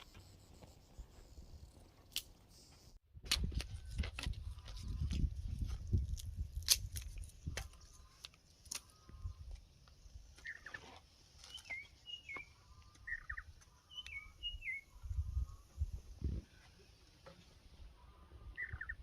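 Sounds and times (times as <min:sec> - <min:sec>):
small birds chirping: 0:07.2 - 0:19.0.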